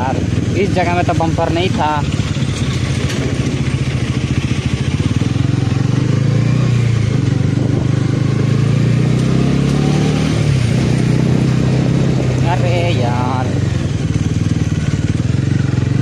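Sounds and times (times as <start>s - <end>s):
motorcycle engine running: 0.0s - 16.0s
wind noise on microphone: 2.8s - 14.7s.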